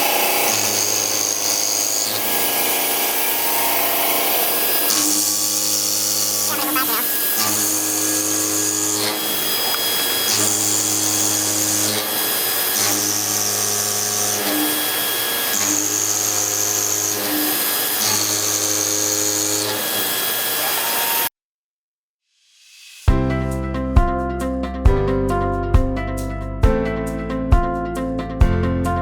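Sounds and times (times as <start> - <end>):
metal-cutting machine humming and whining: 0.0 - 21.3.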